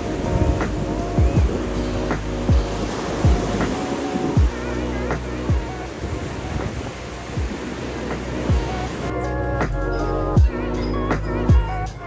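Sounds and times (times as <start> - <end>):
lo-fi music with held chords: 0.0 - 12.0
deep kick drum falling in pitch: 1.2 - 1.6, 10.4 - 10.6.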